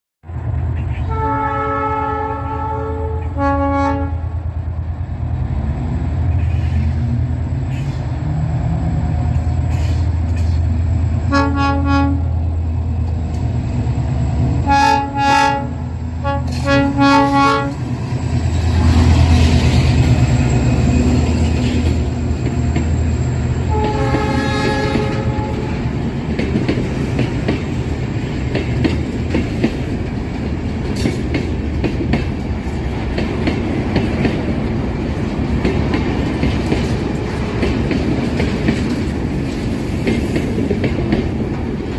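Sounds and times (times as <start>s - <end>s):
diesel locomotive engine rumbling: 0.2s - 41.9s
locomotive horn blasts: 1.0s - 4.4s, 11.3s - 12.4s, 14.6s - 17.8s, 23.7s - 25.9s
train wheels clacking on rails: 6.2s - 11.0s, 16.3s - 41.9s.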